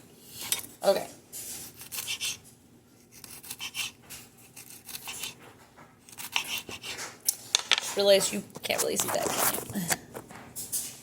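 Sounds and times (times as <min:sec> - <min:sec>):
knife cutting on cutting board: 0:03.1 - 0:05.4, 0:06.1 - 0:07.2.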